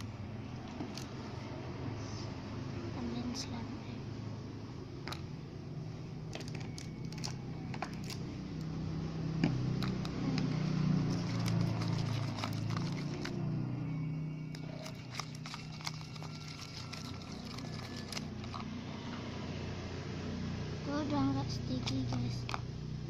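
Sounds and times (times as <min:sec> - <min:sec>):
low drone: 0:04.0 - 0:20.9.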